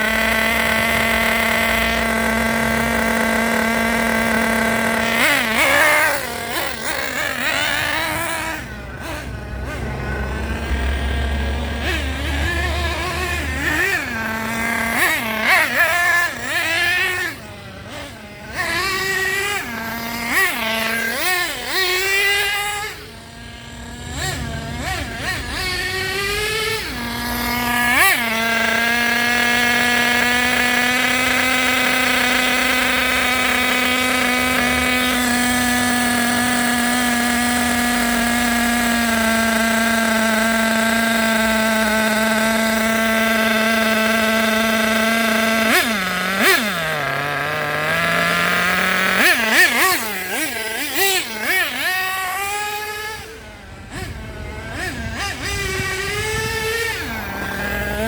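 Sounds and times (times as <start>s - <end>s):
small nitro engine revving: 0.0s - 58.0s.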